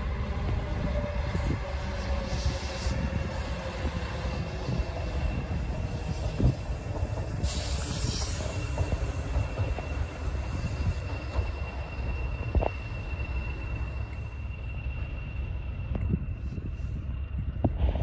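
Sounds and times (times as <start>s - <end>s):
train rumbling: 0.0s - 18.0s
high whine: 7.8s - 18.0s.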